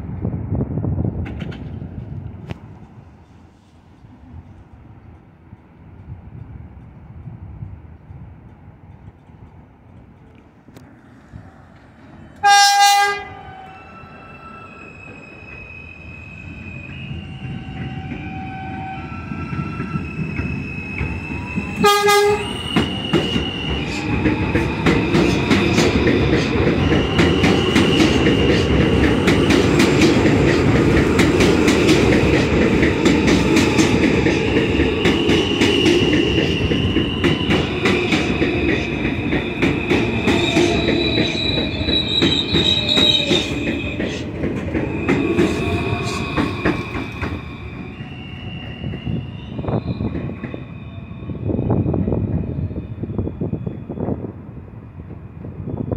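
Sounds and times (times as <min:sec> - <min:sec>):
train wheels clattering on rails: 0:01.0 - 0:03.0, 0:16.7 - 0:50.7
train horn blasts: 0:12.4 - 0:13.8, 0:21.8 - 0:22.6.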